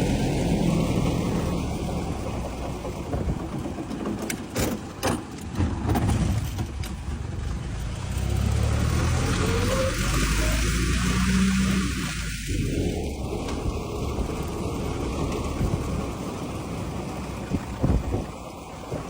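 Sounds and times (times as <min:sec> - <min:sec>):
old car engine running with knocks: 0:00.0 - 0:19.0.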